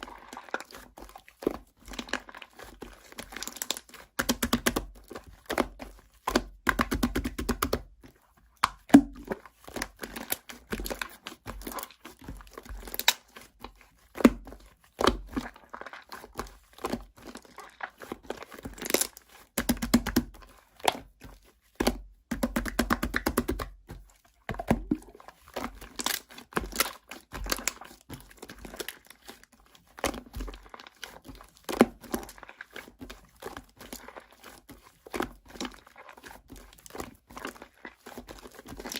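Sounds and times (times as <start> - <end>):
crinkling and tearing: 9.0 - 13.8, 24.9 - 29.4.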